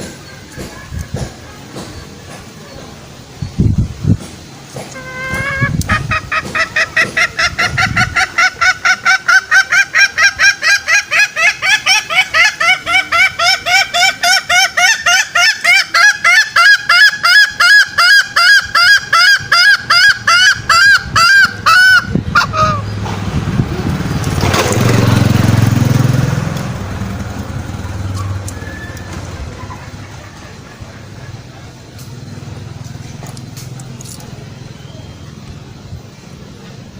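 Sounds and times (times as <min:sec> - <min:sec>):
bird honking call: 0:04.9 - 0:23.0
low rumbling noise: 0:18.6 - 0:36.9.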